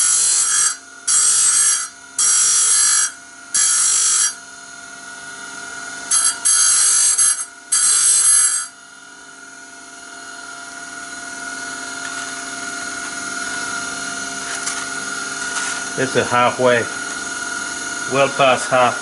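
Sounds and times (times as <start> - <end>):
power grinding tool whining: 0.0 - 19.0
harsh grinding on saw teeth: 6.1 - 8.8.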